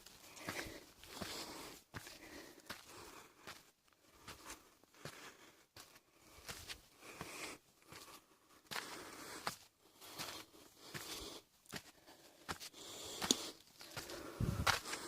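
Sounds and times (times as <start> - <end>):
footsteps scuffing and crunching: 7.9 - 15.0.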